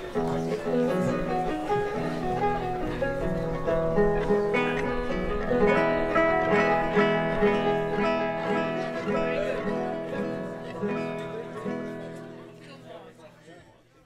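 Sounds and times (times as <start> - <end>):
acoustic guitar music: 0.0 - 13.4.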